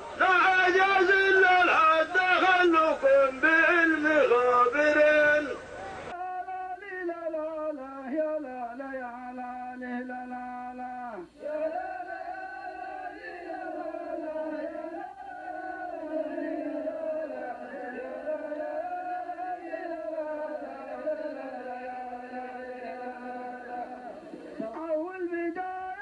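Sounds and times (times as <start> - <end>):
man chanting: 0.2 - 11.8.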